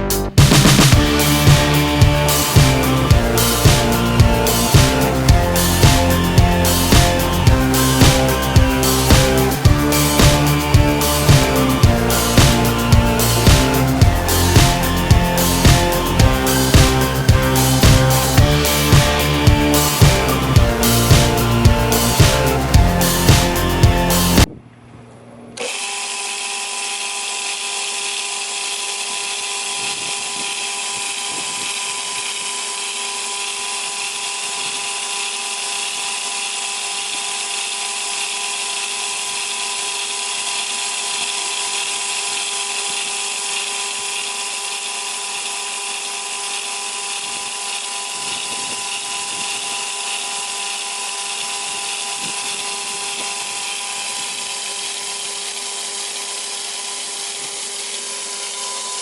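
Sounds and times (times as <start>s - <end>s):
chain saw whining: 25.6s - 59.0s.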